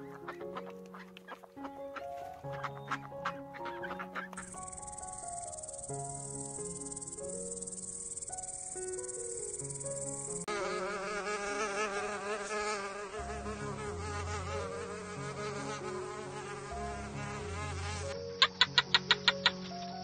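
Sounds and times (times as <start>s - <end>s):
soft background music: 0.0s - 20.0s
fly buzzing: 2.5s - 19.9s
cricket trilling: 3.8s - 10.5s, 18.4s - 20.0s.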